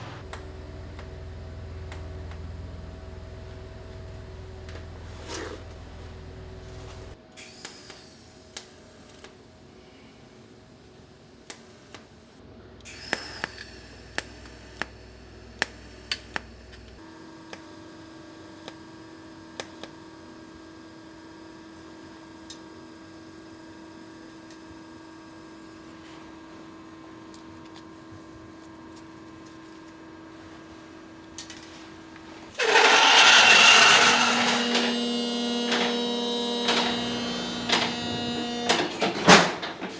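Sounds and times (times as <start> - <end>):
steady low hum: 0.0 - 7.2
power tool whining: 32.5 - 39.9.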